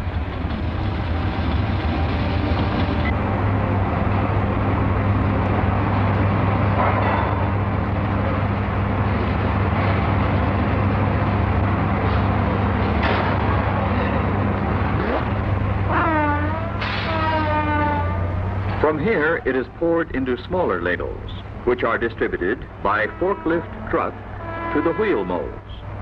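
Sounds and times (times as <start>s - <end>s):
constant low hum: 0.0s - 26.0s
foundry machinery roar: 0.0s - 26.0s.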